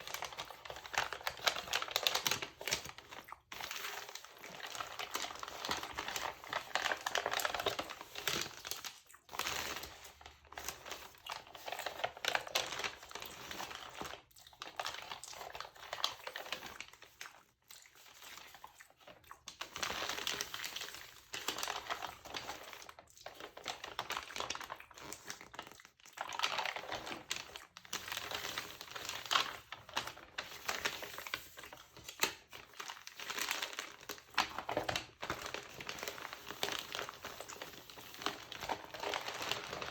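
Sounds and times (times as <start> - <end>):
magazine pages crinkling: 0.0 - 14.2, 23.5 - 39.9.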